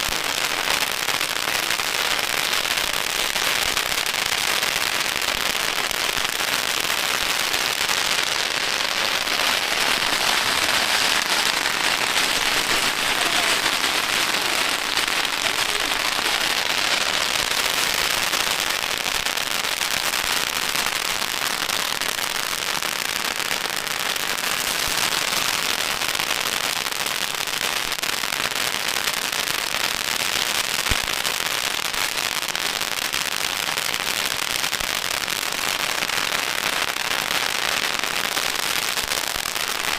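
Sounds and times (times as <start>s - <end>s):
firecrackers crackling: 0.0s - 39.9s
sharp crack: 7.5s - 20.0s.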